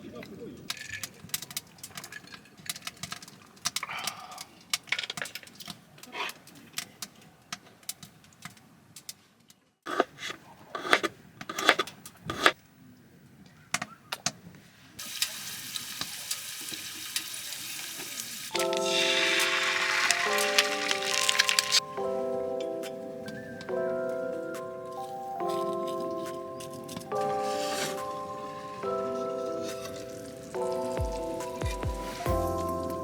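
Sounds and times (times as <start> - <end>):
steady hiss: 15.0 - 21.9, 27.2 - 33.0.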